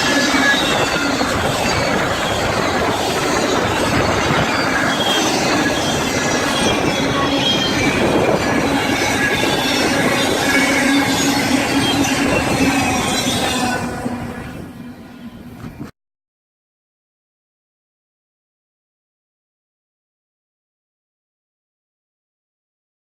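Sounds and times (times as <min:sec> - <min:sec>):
train cars rumbling: 0:00.0 - 0:15.9
train wheels squealing on rails: 0:00.0 - 0:15.9.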